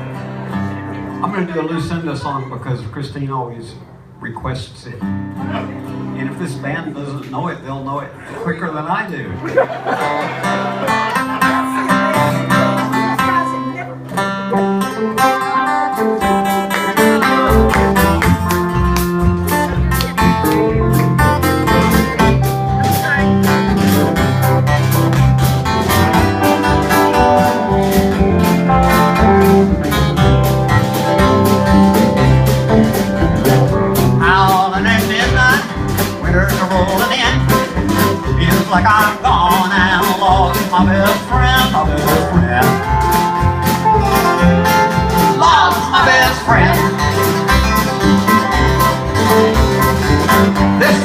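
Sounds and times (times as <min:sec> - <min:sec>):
acoustic guitar picked and strummed: 0:00.0 - 0:01.5, 0:05.0 - 0:07.2, 0:09.6 - 0:51.0
live country band playing: 0:00.0 - 0:51.0
deep low notes: 0:17.4 - 0:51.0.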